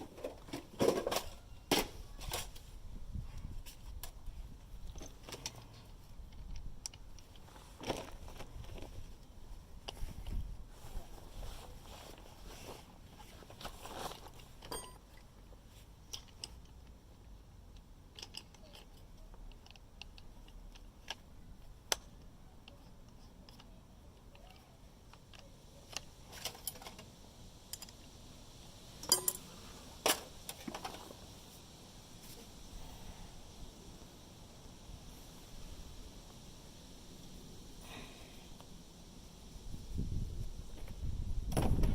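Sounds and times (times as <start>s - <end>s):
metallic clicks of hand tools: 17.7s - 21.3s, 29.0s - 29.5s.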